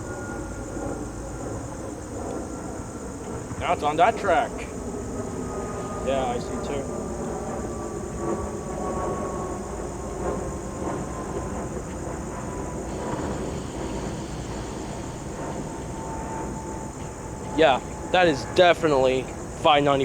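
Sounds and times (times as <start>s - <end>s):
train rumbling on rails: 0.0s - 20.0s
thin high falling tone: 3.6s - 4.7s.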